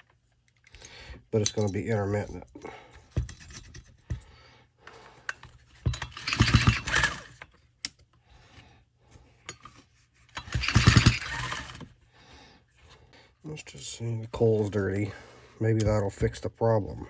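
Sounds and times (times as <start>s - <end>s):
recoil starter pull rattling: 5.3s - 7.5s, 9.5s - 11.9s.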